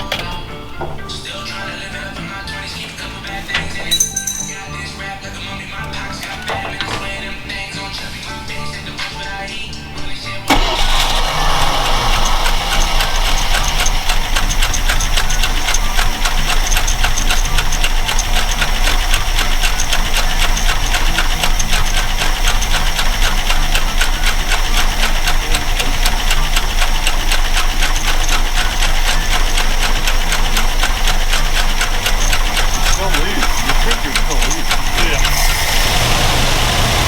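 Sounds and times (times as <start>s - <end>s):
truck engine idling with ticking: 10.5s - 37.0s.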